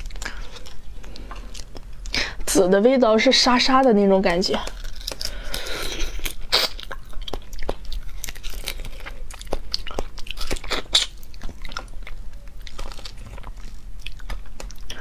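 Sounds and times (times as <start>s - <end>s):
shrimp chewing clicks: 6.1s - 15.0s.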